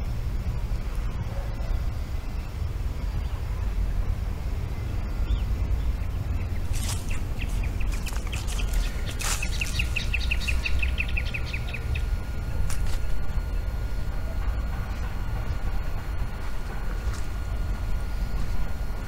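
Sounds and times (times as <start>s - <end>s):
bird chirping rapidly: 4.8s - 12.2s.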